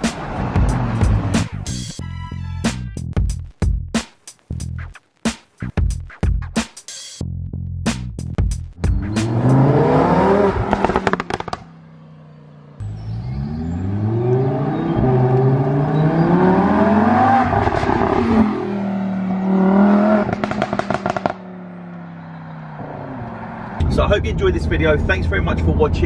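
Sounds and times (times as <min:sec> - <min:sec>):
car engine accelerating hard: 0:00.0 - 0:01.7, 0:08.8 - 0:26.0
exhaust crackling pops: 0:10.5 - 0:11.8, 0:20.2 - 0:21.4.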